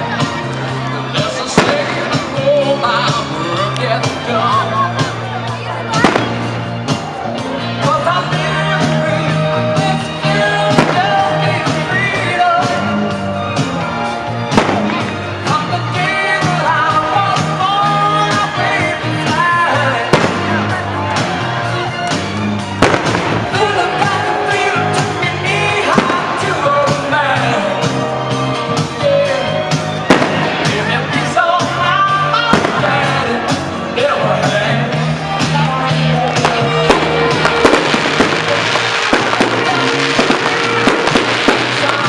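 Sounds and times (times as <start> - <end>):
loud rock music with singing: 0.0 - 42.0
firework bangs: 1.5 - 2.4, 6.0 - 7.0, 10.6 - 11.8, 14.5 - 15.3, 20.0 - 21.5, 22.6 - 23.8, 25.9 - 27.0, 30.0 - 30.9, 32.5 - 33.1, 36.4 - 42.0.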